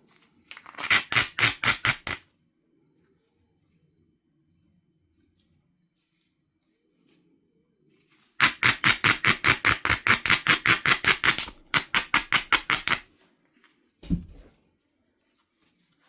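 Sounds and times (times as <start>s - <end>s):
knapping tool striking flint: 14.0s - 14.5s
dull thump: 14.0s - 14.6s.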